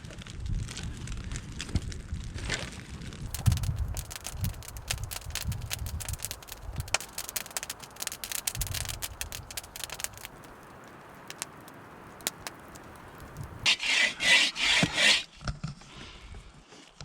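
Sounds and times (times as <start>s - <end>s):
campfire crackling and popping: 0.0s - 13.8s
flame rushing: 3.2s - 15.3s.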